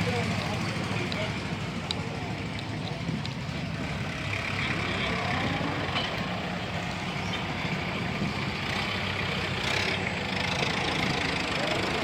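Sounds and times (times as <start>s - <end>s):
heavy engine idling: 0.0s - 12.0s.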